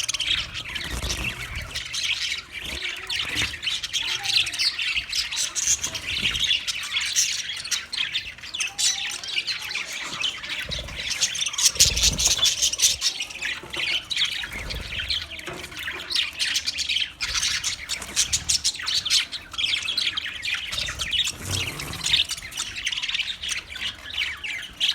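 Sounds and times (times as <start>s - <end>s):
budgerigars chattering and warbling: 0.0s - 24.9s.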